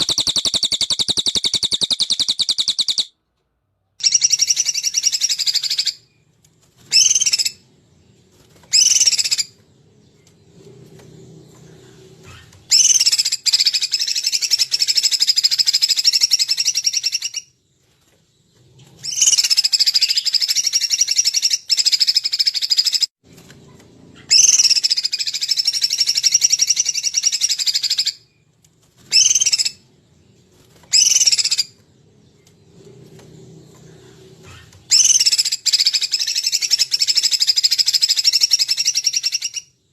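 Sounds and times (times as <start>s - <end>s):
songbird singing: 0.0s - 3.1s, 4.0s - 39.9s
faint low hum: 28.1s - 37.0s.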